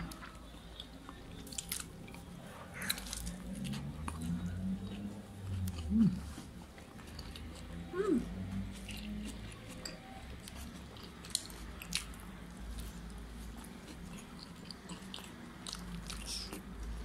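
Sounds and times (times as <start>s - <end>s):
chewing and mouth clicks: 0.0s - 17.0s
low steady hum: 0.0s - 17.0s.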